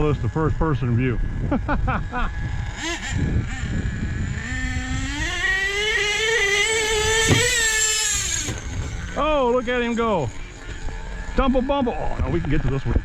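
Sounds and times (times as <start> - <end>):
small engine revving to a whine: 0.0 - 13.0.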